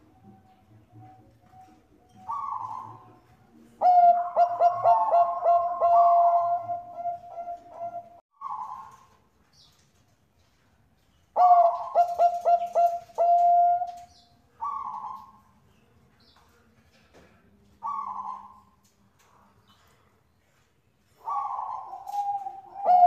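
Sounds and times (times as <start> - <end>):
dove cooing: 0.0 - 9.1, 11.4 - 15.5, 17.8 - 18.8, 21.2 - 23.0.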